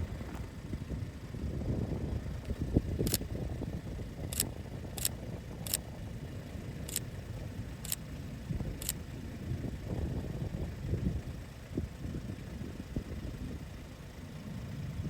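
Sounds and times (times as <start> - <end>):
wind buffeting microphone: 0.0 - 7.7
camera shutter clicking: 3.0 - 3.2.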